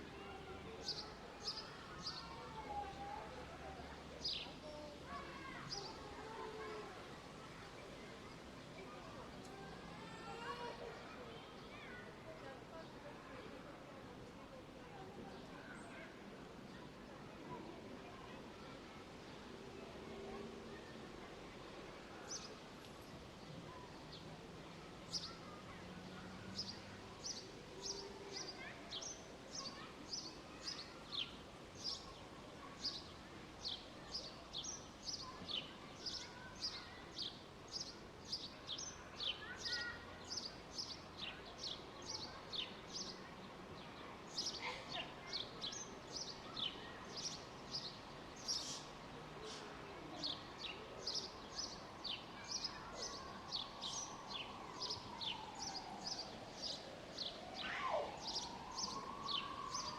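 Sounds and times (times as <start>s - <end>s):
small birds chirping: 26.6s - 43.2s, 43.8s - 59.9s.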